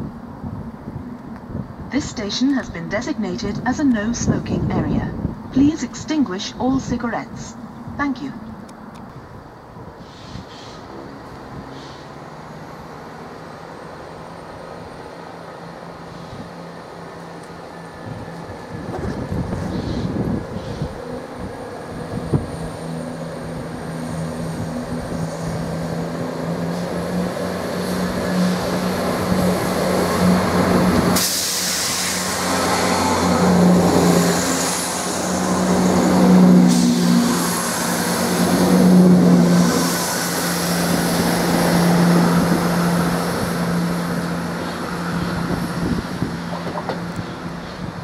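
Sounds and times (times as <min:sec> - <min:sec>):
rush of wheel and air noise: 0:00.0 - 0:02.0, 0:08.8 - 0:48.0
diesel train engine hum: 0:00.0 - 0:48.0.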